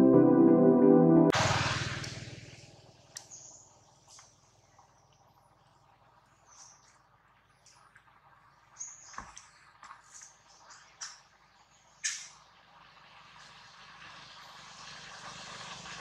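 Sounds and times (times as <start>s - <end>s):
intro music: 0.0s - 1.4s.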